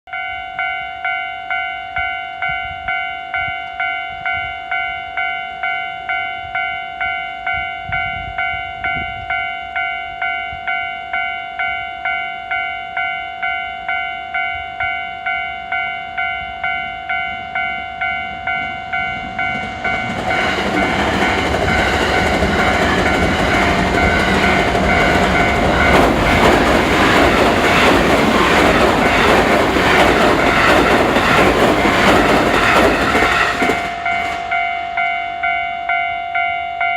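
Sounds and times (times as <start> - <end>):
trains rumbling and wheels clattering: 0.1 - 36.9
level crossing bell ringing: 33.4 - 36.9.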